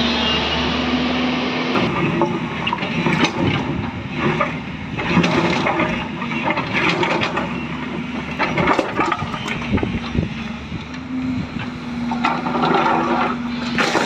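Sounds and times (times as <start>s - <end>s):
knocks and clanks: 1.8s - 10.2s, 11.6s - 14.0s.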